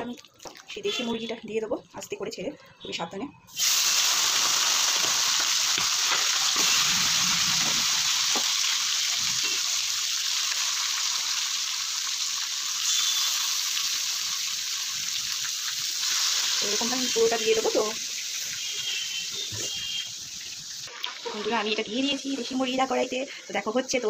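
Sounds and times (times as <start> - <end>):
chicken sizzling in hot oil: 3.5 - 24.0.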